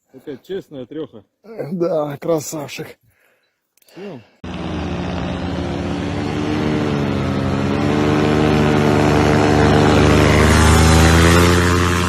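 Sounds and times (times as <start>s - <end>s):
motorboat engine passing by: 4.4s - 12.0s.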